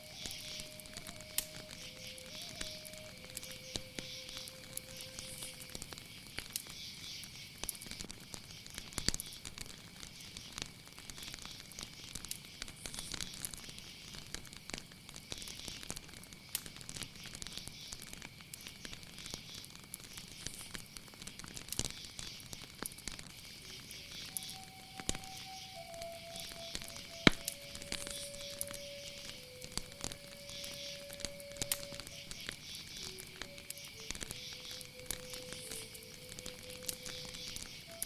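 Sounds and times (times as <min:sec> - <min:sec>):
low whistled note: 0:00.0 - 0:05.7, 0:24.2 - 0:32.4
crackling clicks: 0:00.0 - 0:38.0
hissing insect chorus: 0:00.0 - 0:38.0
insects chirring drone: 0:00.0 - 0:38.0.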